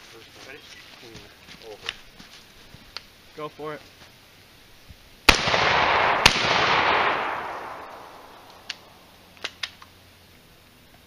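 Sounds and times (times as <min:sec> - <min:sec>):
shotgun shots: 0:05.3 - 0:08.9.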